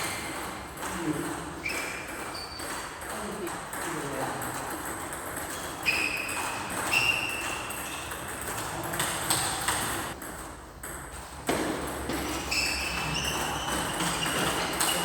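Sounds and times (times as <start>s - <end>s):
shoes squeaking on court floor: 0.0s - 3.1s, 5.3s - 10.2s, 11.5s - 15.0s.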